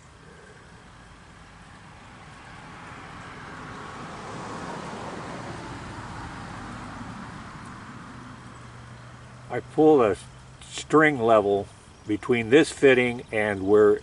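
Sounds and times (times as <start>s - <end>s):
vehicle passing by: 0.2s - 13.5s.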